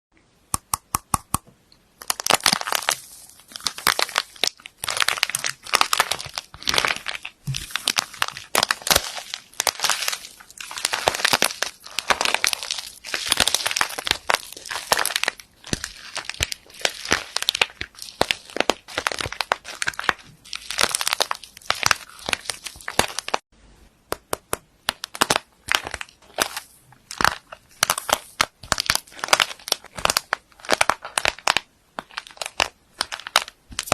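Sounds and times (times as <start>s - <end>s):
slime crackling and popping: 2.0s - 23.4s, 24.3s - 33.9s.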